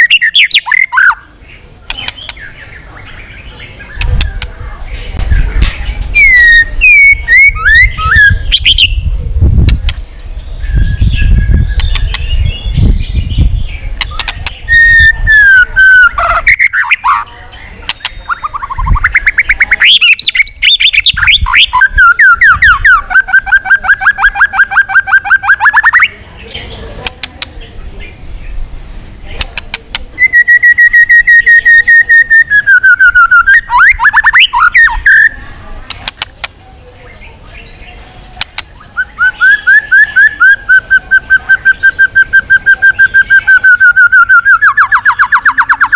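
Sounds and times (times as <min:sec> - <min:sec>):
bird singing whistled phrases: 0:00.0 - 0:01.3, 0:06.1 - 0:09.1, 0:10.6 - 0:26.2, 0:30.2 - 0:35.4, 0:38.8 - 0:45.9.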